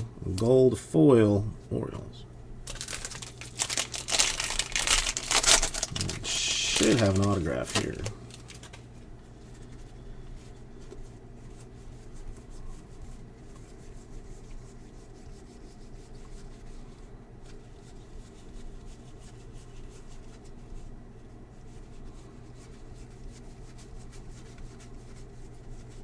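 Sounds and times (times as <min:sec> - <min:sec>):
steady low hum: 0:00.0 - 0:10.8
cards rubbing and flicking: 0:02.7 - 0:08.9.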